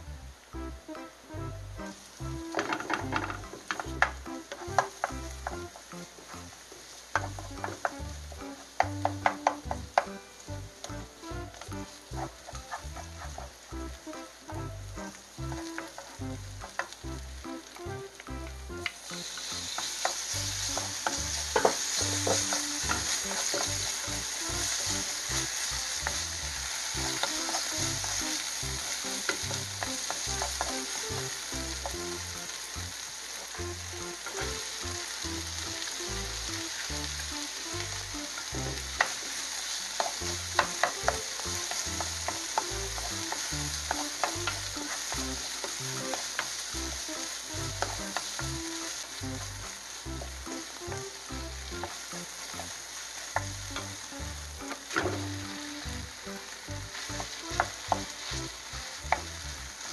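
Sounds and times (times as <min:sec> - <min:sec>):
meat sizzling in a frying pan: 0:01.8 - 0:59.9
spatula clicking against pan: 0:08.7 - 0:10.2, 0:40.0 - 0:46.6.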